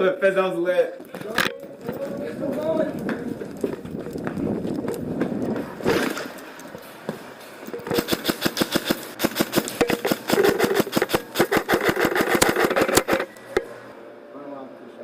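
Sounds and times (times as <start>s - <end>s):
airsoft guns firing rapid shots: 7.9s - 13.3s.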